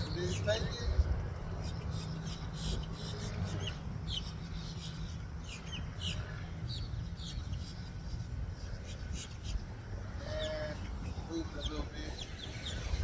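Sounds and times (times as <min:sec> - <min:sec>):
small birds chirping: 0:00.0 - 0:13.0
steady low rumble: 0:10.8 - 0:13.0.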